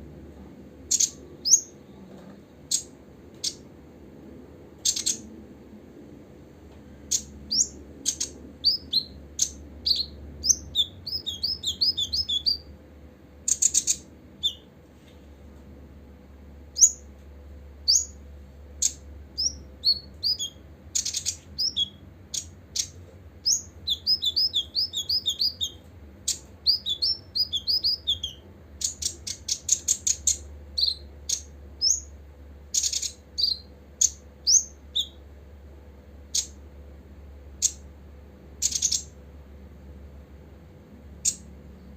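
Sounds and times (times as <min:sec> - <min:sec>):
sunbird chirping: 0:00.9 - 0:02.0, 0:04.8 - 0:05.3, 0:07.0 - 0:12.8, 0:13.4 - 0:14.7, 0:16.7 - 0:17.1, 0:17.8 - 0:18.2, 0:18.8 - 0:32.1, 0:32.7 - 0:35.2, 0:38.6 - 0:39.2.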